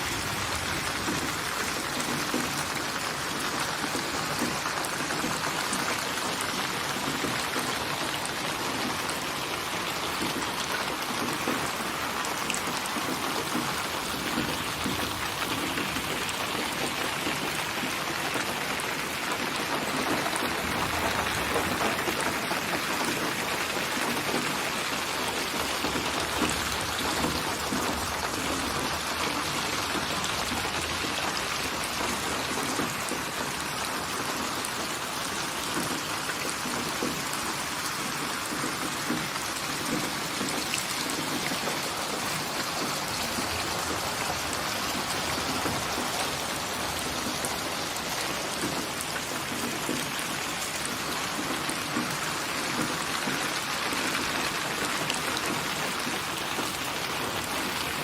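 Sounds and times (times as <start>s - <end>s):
rain falling on a surface: 0.0s - 58.0s.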